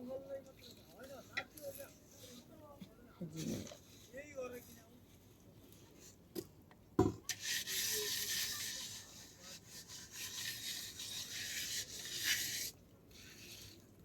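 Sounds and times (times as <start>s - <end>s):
knock: 7.0s - 7.2s
scratchy scraping: 7.3s - 13.8s.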